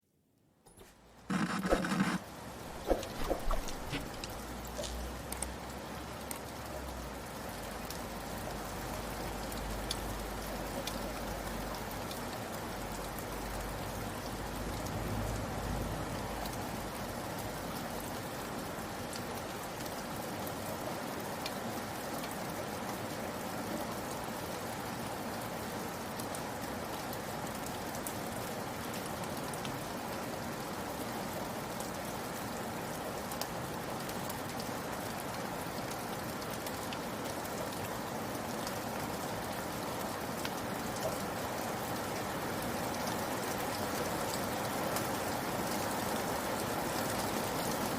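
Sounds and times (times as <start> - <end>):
rain falling: 1.6 - 47.9.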